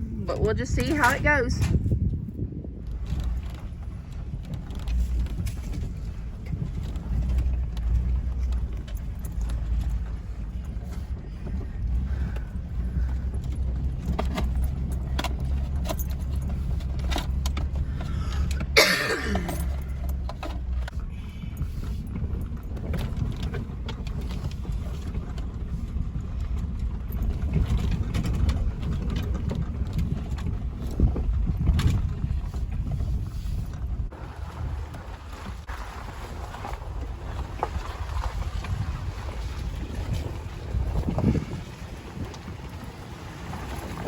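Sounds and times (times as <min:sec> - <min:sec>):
engine idling: 0:02.6 - 0:31.3.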